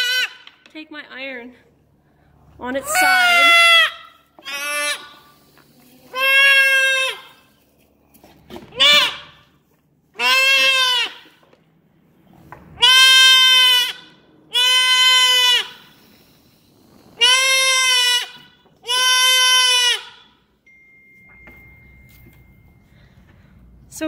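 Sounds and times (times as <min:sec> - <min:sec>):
goat kid bleating loudly: 0:00.0 - 0:00.5, 0:02.8 - 0:05.2, 0:06.0 - 0:07.5, 0:08.7 - 0:09.5, 0:10.2 - 0:11.4, 0:12.8 - 0:15.9, 0:17.2 - 0:20.3.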